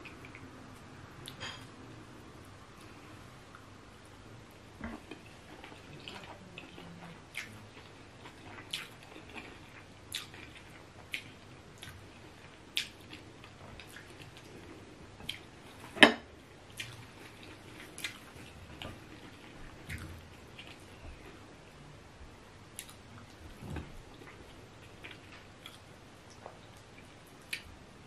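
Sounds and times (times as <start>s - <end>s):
wet chewing clicks and smacks: 5.1s - 12.0s, 12.7s - 14.6s, 15.2s - 15.5s, 16.7s - 20.8s, 22.8s - 23.4s, 24.1s - 27.7s.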